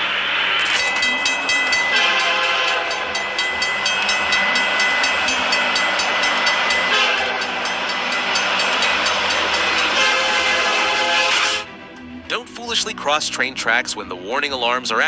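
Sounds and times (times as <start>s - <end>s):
steady high tone: 0.0s - 15.0s
level crossing bell ringing: 0.6s - 11.7s.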